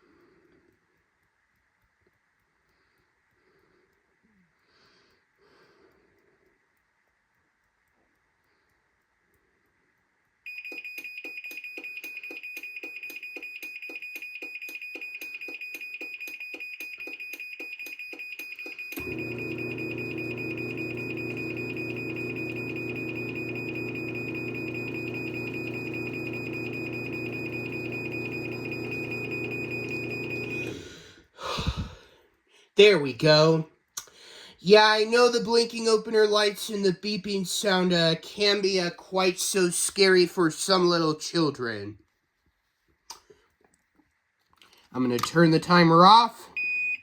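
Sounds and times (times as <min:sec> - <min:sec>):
garage door motor humming: 0:19.0 - 0:30.9.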